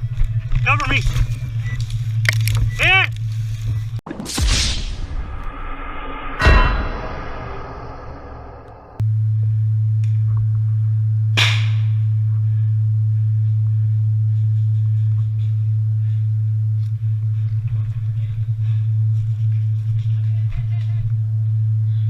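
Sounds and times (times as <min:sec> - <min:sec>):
sharp crack: 0:04.0 - 0:09.0.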